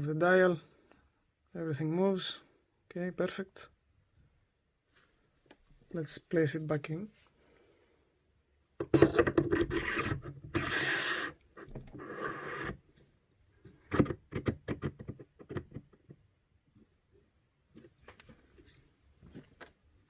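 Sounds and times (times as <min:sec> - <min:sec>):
rubbing and scraping: 0:08.8 - 0:12.8.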